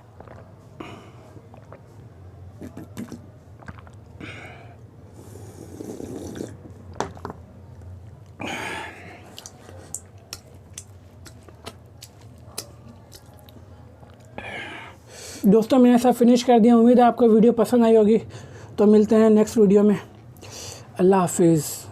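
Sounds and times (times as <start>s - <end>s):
chewing and crunching crisp food: 0.0s - 0.7s, 1.4s - 4.2s, 5.8s - 14.4s.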